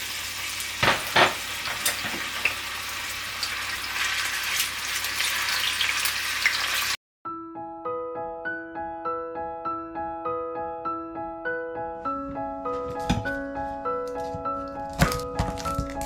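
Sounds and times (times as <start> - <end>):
oil sizzling and bubbling: 0.0 - 7.0
gentle piano music: 7.3 - 16.0.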